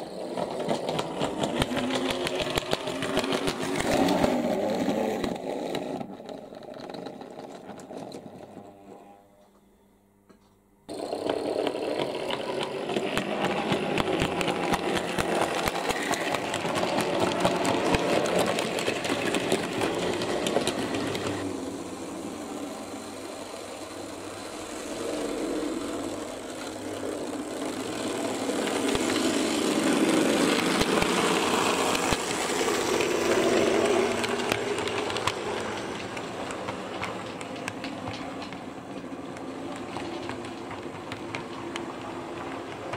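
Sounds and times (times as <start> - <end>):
wheels clicking over rail joints: 0.0 - 8.8, 10.9 - 42.9
small electric motors whirring: 10.9 - 42.9.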